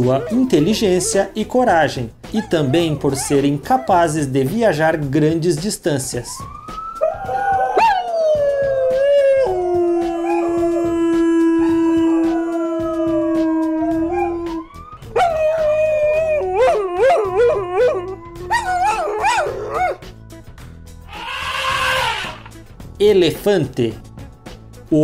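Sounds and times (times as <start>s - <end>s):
wolves howling: 0.0s - 4.5s, 6.9s - 20.1s, 21.1s - 22.6s
wolves yipping: 0.0s - 4.5s, 7.0s - 20.1s, 21.1s - 22.6s.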